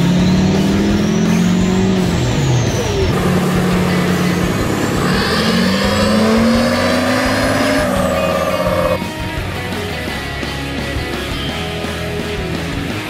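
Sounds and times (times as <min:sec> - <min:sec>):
diesel truck engine revving: 0:00.0 - 0:09.0
turbo whistle: 0:02.7 - 0:09.0.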